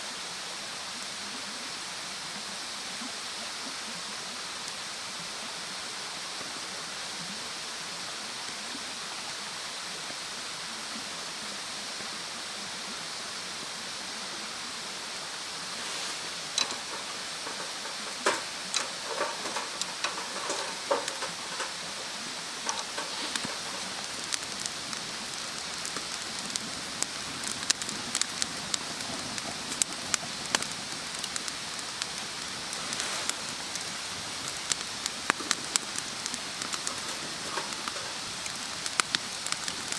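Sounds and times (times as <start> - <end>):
campfire crackling: 3.9 - 9.8, 12.6 - 39.9.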